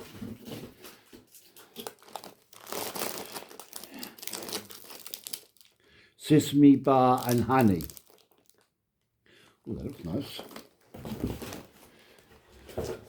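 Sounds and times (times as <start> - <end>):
plastic wrappers crinkling: 1.2 - 8.8, 9.7 - 12.2.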